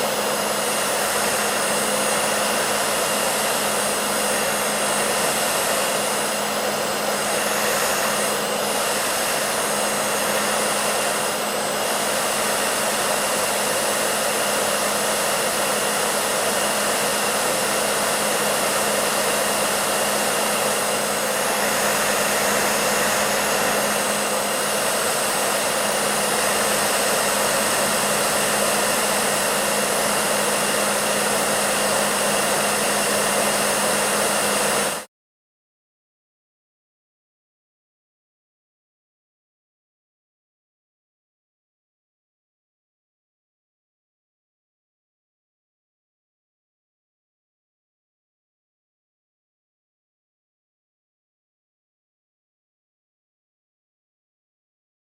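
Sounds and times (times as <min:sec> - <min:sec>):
hair dryer running: 0:00.0 - 0:35.1.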